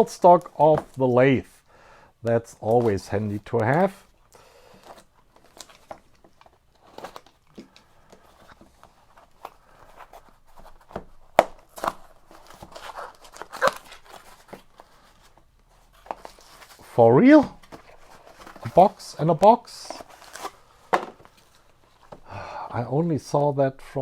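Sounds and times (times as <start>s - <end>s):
cardboard packaging rustling: 0.0s - 1.7s, 4.8s - 22.3s.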